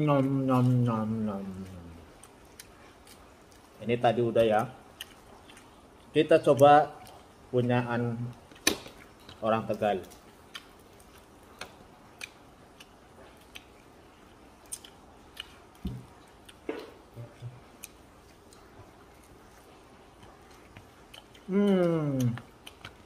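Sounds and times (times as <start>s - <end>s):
close-up chewing: 0.2s - 7.5s, 8.2s - 23.0s
person humming: 21.5s - 22.5s.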